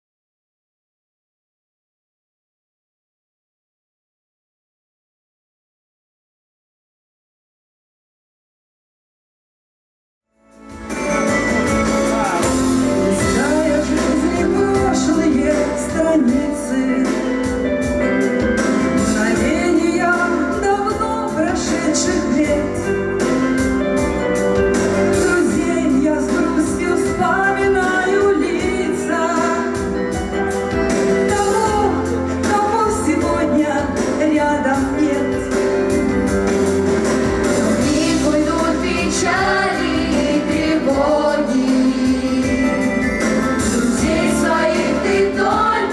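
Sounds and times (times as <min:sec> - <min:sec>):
instrumental accompaniment: 0:10.4 - 0:45.9
people singing: 0:12.0 - 0:17.6, 0:18.7 - 0:22.9, 0:25.1 - 0:30.0, 0:37.7 - 0:45.9.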